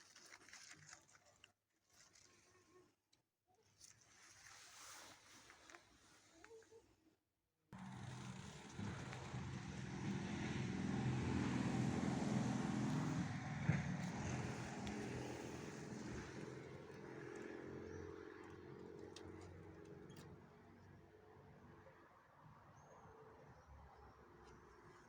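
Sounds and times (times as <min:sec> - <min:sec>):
vehicle passing by: 0:07.8 - 0:20.3.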